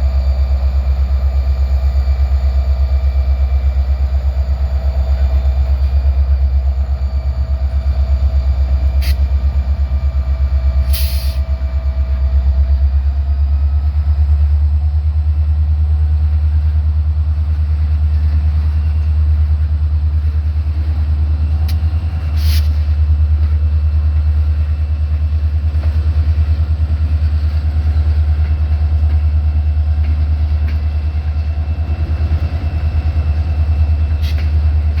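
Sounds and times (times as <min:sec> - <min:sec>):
locomotive rumble: 0:00.0 - 0:35.0.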